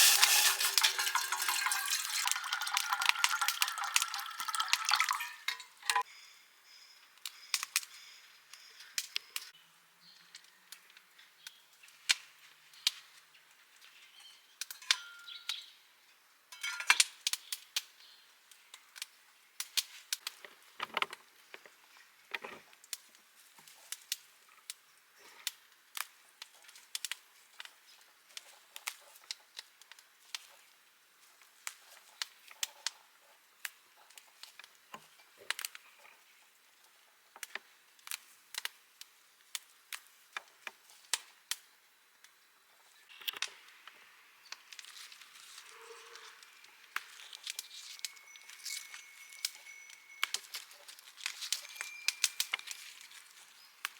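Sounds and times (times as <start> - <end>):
wood fire crackling and popping: 0.0 - 5.3, 18.5 - 24.8, 25.4 - 30.7, 37.4 - 42.4, 46.7 - 53.9.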